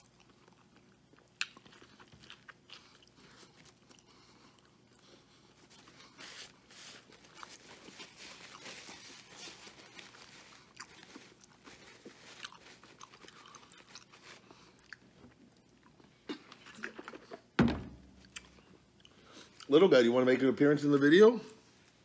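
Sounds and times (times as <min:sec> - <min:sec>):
man chewing food: 0:00.0 - 0:19.7
paper wrapper crinkling: 0:06.0 - 0:14.6.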